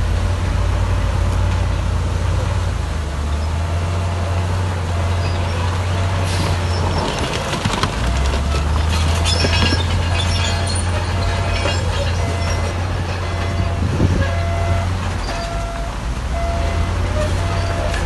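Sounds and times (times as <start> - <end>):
diesel engine droning: 0.0 - 18.0
metallic clanks and squeals: 4.9 - 18.0
reversing alarm beeping: 8.0 - 18.0.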